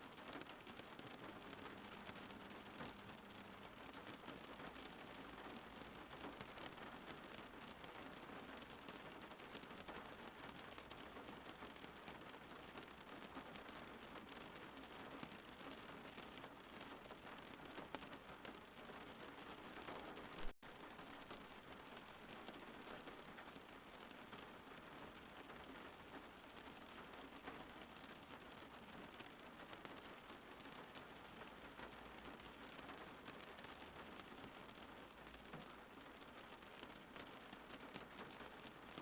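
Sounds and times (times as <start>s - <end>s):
faint rain falling: 0.0s - 39.0s.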